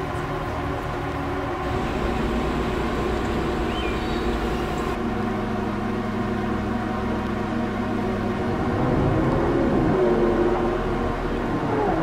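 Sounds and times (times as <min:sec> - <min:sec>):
car engines idling: 0:00.0 - 0:08.7.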